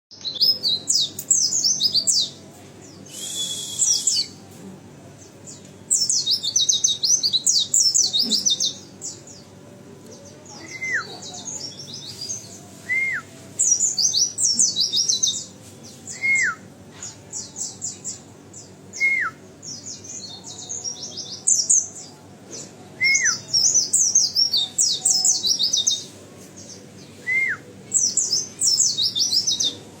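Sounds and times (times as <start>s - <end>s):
bird twittering song: 0.1s - 4.4s, 5.2s - 9.5s, 13.6s - 29.8s.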